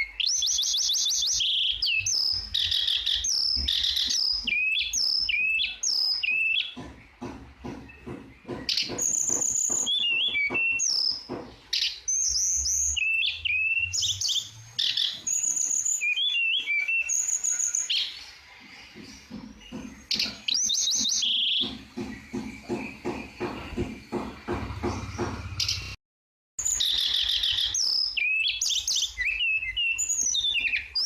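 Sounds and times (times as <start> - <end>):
bird whistling song: 0.0 - 6.8, 7.8 - 18.4, 19.2 - 26.0, 26.6 - 31.0
bird chattering ticks: 2.1 - 12.3.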